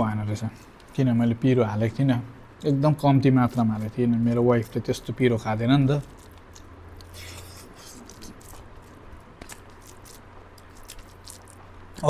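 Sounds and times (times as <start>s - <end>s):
faint steady hum: 0.0s - 12.0s
person chewing food: 6.0s - 12.0s
wet mouth clicks and smacks: 6.2s - 8.7s.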